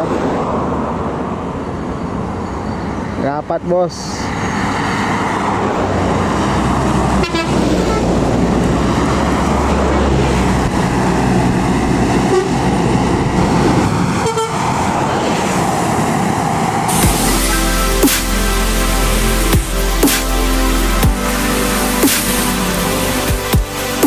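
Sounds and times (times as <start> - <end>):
buses and trucks passing: 0.0 - 24.0
tyre and road noise: 0.0 - 24.0
vehicle horn toots: 7.2 - 8.2, 12.3 - 12.6, 14.2 - 14.6
electronic music: 16.9 - 24.0.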